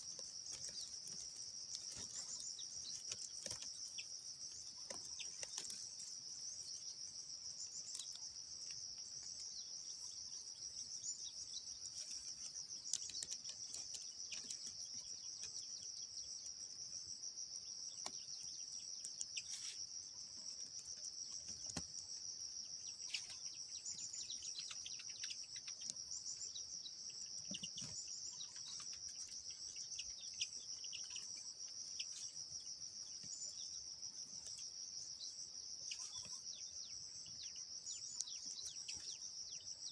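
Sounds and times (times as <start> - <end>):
insects trilling: 0.0 - 39.9
bird chirps: 22.6 - 39.9.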